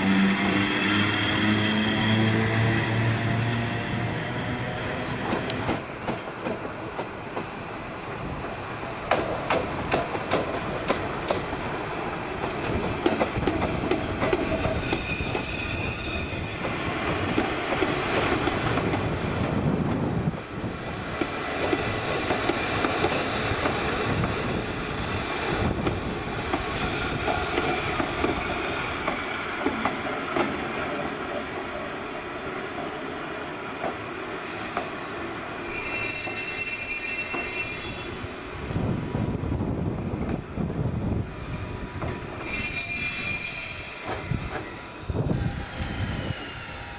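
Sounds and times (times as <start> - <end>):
high wheel squeal: 0.0 - 2.6, 14.4 - 16.7, 34.2 - 38.9, 41.4 - 46.9
train rumble: 0.0 - 33.0
train wheels clicking over rail joints: 9.0 - 11.6, 12.4 - 15.5, 21.1 - 24.5.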